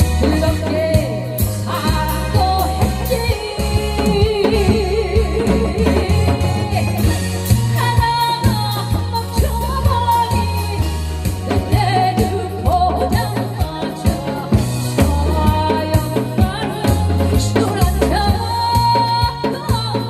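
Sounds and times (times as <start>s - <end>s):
drum kit and bass beat: 0.0s - 20.0s
woman singing with vibrato: 0.0s - 20.0s.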